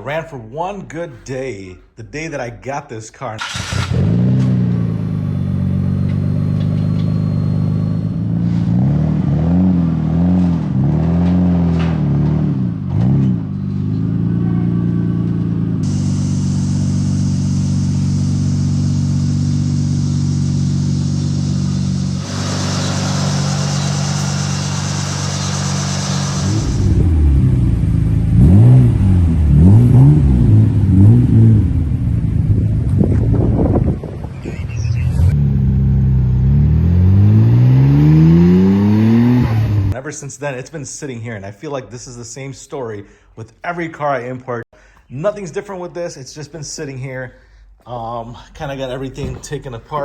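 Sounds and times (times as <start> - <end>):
car engine idling and revving: 3.4 - 40.0.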